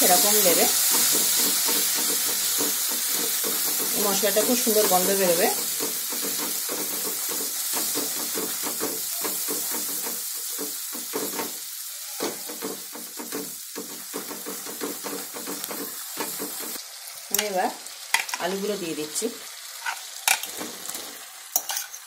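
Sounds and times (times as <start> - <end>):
spice paste sizzling in oil: 0.0 - 22.0
spatula scraping pan: 19.8 - 22.0.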